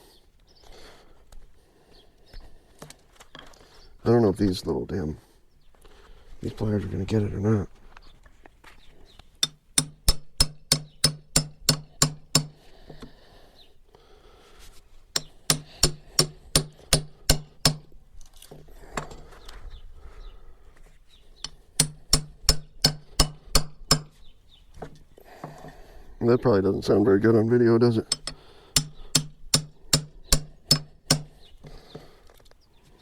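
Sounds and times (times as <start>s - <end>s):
hammer striking steel tool: 9.4s - 12.6s, 15.2s - 17.9s, 21.4s - 24.2s, 28.1s - 31.3s.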